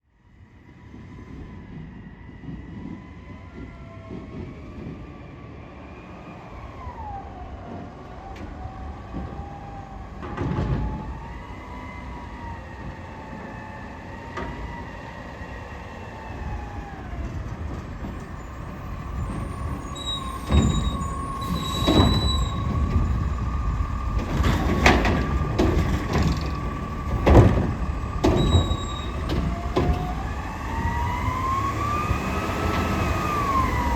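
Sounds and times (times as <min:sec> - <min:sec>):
garbage truck engine rumbling: 0:07.6 - 0:33.9
rising and falling whines: 0:26.1 - 0:33.9.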